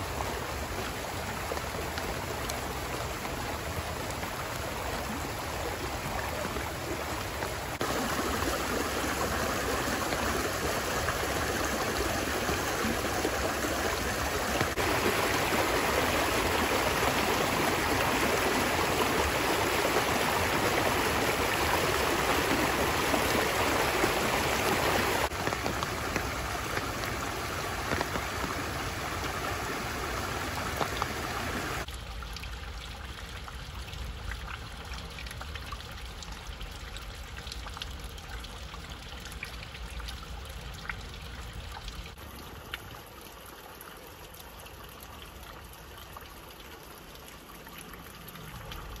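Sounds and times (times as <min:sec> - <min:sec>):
stream rushing: 0:00.0 - 0:31.9.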